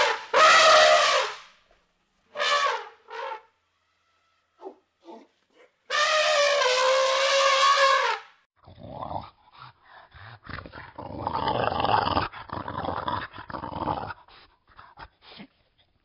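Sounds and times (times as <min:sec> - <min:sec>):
dog growling: 0:10.1 - 0:14.3.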